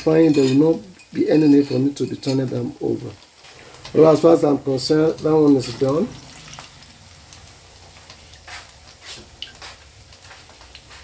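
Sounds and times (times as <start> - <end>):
plantain sizzling in oil: 0.0 - 11.0.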